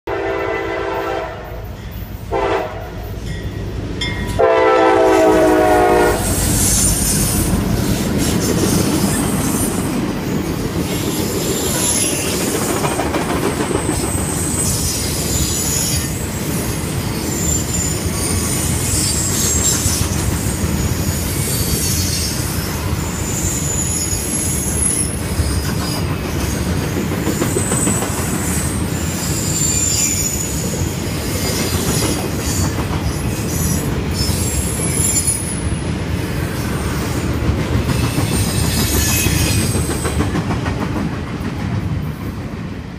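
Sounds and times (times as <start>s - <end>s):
locomotive horn blasts: 0.1s - 1.6s, 2.3s - 3.0s, 4.3s - 6.5s
high-pitched wheel squeal: 6.2s - 9.9s, 11.4s - 12.4s, 14.1s - 16.3s, 21.3s - 25.2s, 27.4s - 30.7s, 32.4s - 35.7s, 38.2s - 39.8s
wheels clacking over rail joints: 6.8s - 16.1s.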